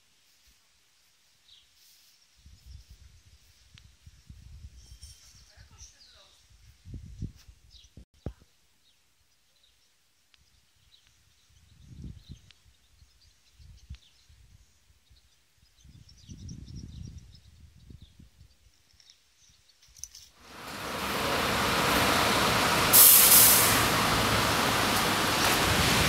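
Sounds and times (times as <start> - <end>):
small birds chirping: 5.2 - 6.5, 7.6 - 20.3
low rumbles: 20.4 - 26.0.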